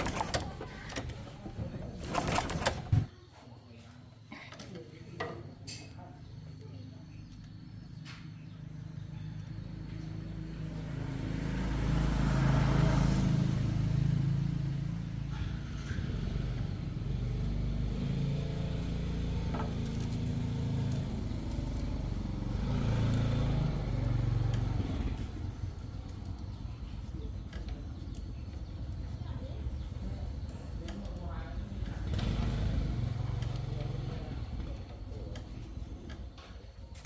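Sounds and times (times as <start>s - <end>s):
small motorcycle engine running: 9.1s - 37.0s.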